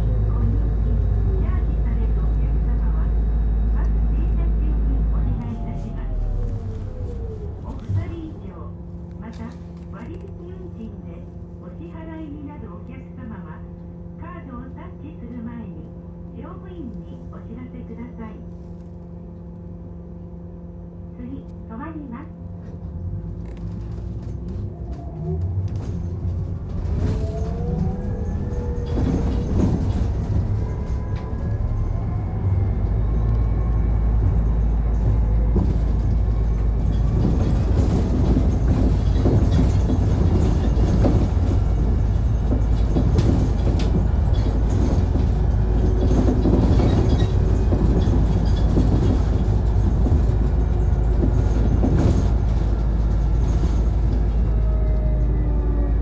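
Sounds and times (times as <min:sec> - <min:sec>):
deep steady drone: 0:00.0 - 0:09.2
bus motor whine rising: 0:02.2 - 0:09.2, 0:22.4 - 0:39.2.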